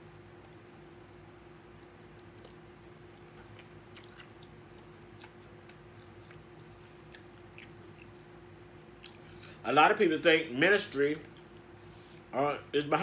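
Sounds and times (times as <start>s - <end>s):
mouth clicks and smacks: 1.7s - 8.2s, 9.0s - 9.6s
faint chewing: 1.7s - 8.3s, 8.9s - 9.6s.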